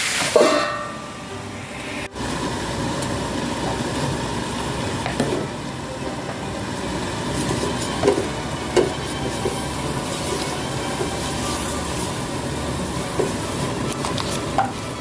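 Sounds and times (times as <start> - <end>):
food sizzling in a frying pan: 0.0 - 1.2, 1.8 - 8.5, 9.2 - 15.0.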